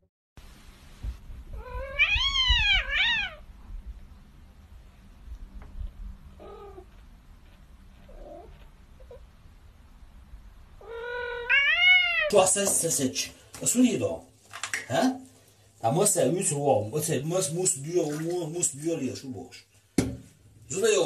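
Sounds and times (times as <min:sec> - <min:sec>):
cat meowing: 0:01.5 - 0:03.5, 0:06.4 - 0:06.9, 0:10.8 - 0:12.3.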